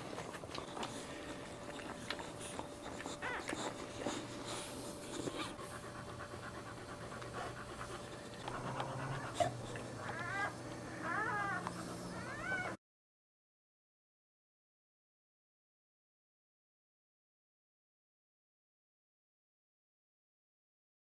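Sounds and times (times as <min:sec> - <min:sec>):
dog panting rapidly: 0:00.0 - 0:10.4.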